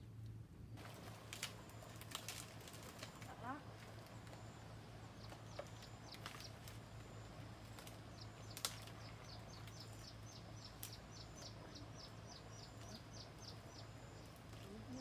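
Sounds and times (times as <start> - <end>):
faint outdoor background: 0.0 - 15.0
small bird chirping: 4.3 - 15.0.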